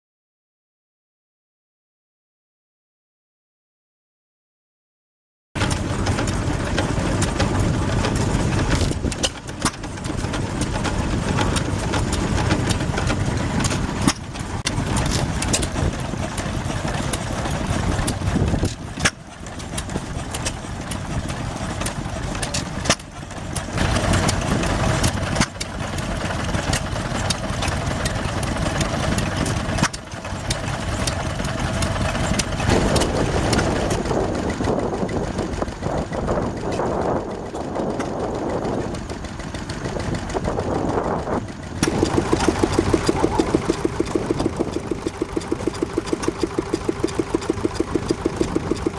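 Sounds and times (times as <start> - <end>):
stationary engines running: 5.6 - 48.9
sharp clicks: 41.8 - 48.9.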